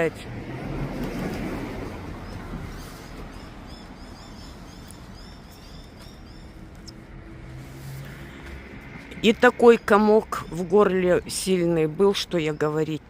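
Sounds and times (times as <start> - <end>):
bird chirping: 2.2 - 7.0.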